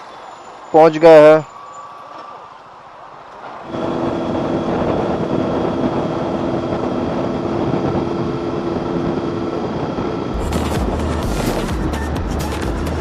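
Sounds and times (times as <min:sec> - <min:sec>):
road and wind noise: 0:00.0 - 0:13.0
vehicle engine hum: 0:01.5 - 0:13.0
music with heavy bass: 0:10.3 - 0:13.0.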